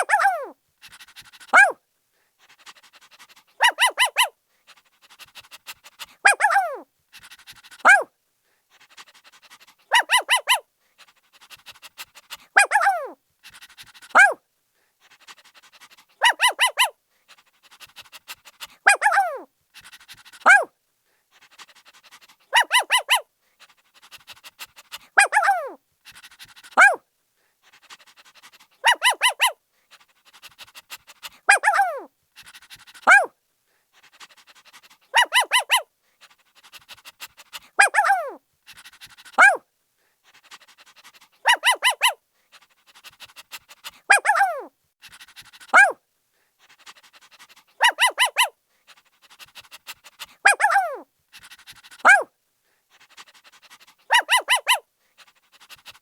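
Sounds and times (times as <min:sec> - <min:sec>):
puppy yelps sliding down: 0:00.0 - 0:00.6, 0:01.5 - 0:01.8, 0:03.6 - 0:04.3, 0:06.2 - 0:06.8, 0:07.8 - 0:08.1, 0:09.9 - 0:10.6, 0:12.6 - 0:13.2, 0:14.1 - 0:14.4, 0:16.2 - 0:16.9, 0:18.9 - 0:19.5, 0:20.4 - 0:20.7, 0:22.6 - 0:23.2, 0:25.2 - 0:25.8, 0:26.8 - 0:27.0, 0:28.8 - 0:29.6, 0:31.5 - 0:32.1, 0:33.0 - 0:33.3, 0:35.2 - 0:35.8, 0:37.8 - 0:38.4, 0:39.4 - 0:39.6, 0:41.5 - 0:42.2, 0:44.1 - 0:44.7, 0:45.7 - 0:46.0, 0:47.8 - 0:48.6, 0:50.4 - 0:51.0, 0:52.0 - 0:52.3, 0:54.1 - 0:54.8
puppy yipping: 0:00.0 - 0:00.6, 0:01.5 - 0:01.8, 0:03.6 - 0:04.3, 0:06.2 - 0:06.8, 0:07.8 - 0:08.1, 0:09.9 - 0:10.6, 0:12.6 - 0:13.2, 0:14.1 - 0:14.4, 0:16.2 - 0:17.0, 0:18.8 - 0:19.5, 0:20.4 - 0:20.7, 0:22.5 - 0:23.2, 0:25.2 - 0:25.8, 0:26.8 - 0:27.0, 0:28.8 - 0:29.6, 0:31.5 - 0:32.1, 0:33.0 - 0:33.3, 0:35.1 - 0:35.9, 0:37.8 - 0:38.4, 0:39.4 - 0:39.6, 0:41.4 - 0:42.2, 0:44.1 - 0:44.7, 0:45.7 - 0:46.0, 0:47.8 - 0:48.6, 0:50.4 - 0:51.0, 0:52.0 - 0:52.3, 0:54.1 - 0:54.8.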